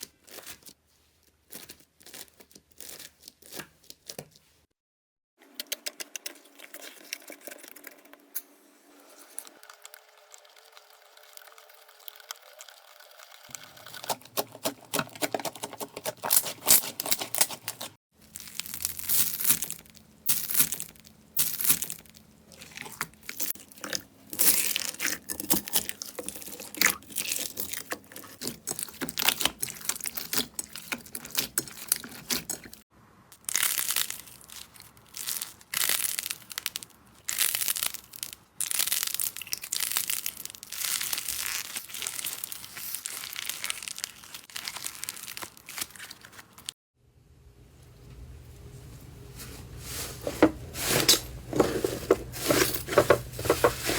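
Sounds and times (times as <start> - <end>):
slime crackling and popping: 18.3 - 32.6, 33.4 - 46.7.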